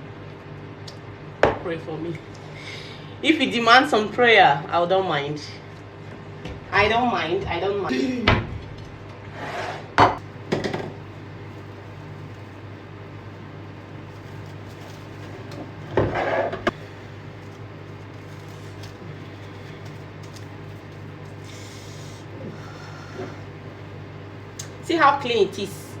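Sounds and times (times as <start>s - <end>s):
low appliance hum: 0.0s - 26.0s
cookware scraping: 9.3s - 11.0s, 14.6s - 16.8s.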